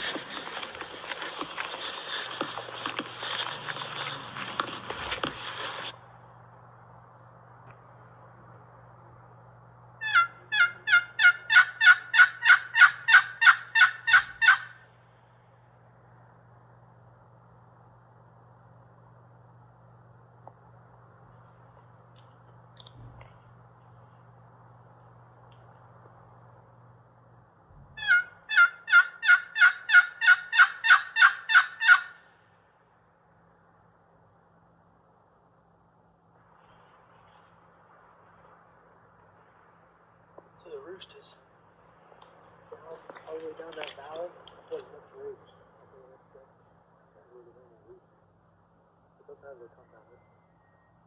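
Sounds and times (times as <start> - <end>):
faint low hum: 0.0 - 12.1, 12.9 - 28.9, 32.1 - 51.0
turkey call hen yelps: 10.0 - 14.8, 28.0 - 32.3.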